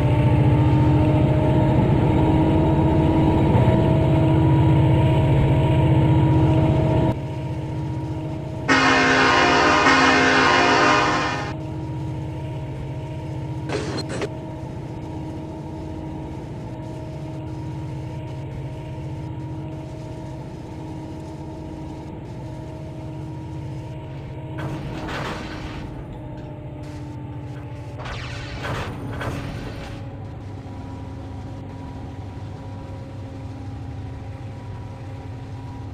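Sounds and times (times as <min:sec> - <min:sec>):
locomotive engine rumbling: 0:00.0 - 0:35.9
diesel locomotive horn: 0:08.0 - 0:11.8.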